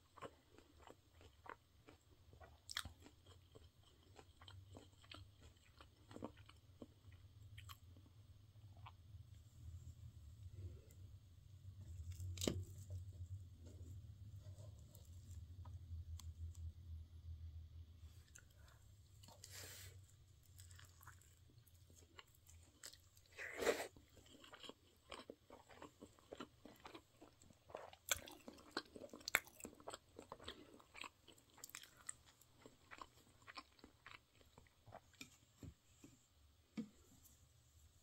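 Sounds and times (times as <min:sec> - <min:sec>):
chewing rice ball: 0:00.0 - 0:09.0, 0:20.2 - 0:35.4.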